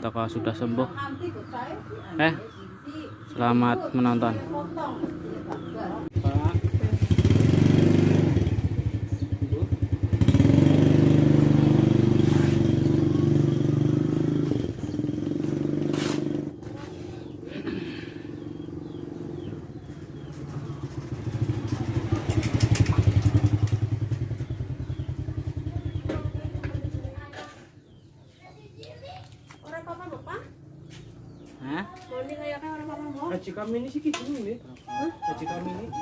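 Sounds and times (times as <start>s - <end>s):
motorcycle engine running: 4.4s - 28.0s.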